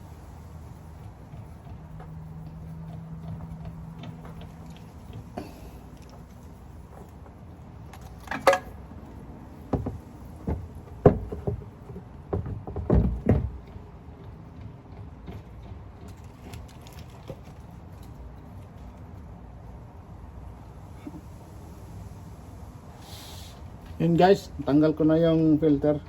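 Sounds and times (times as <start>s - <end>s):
tools knocking and clunking: 7.9s - 8.8s, 9.6s - 16.2s.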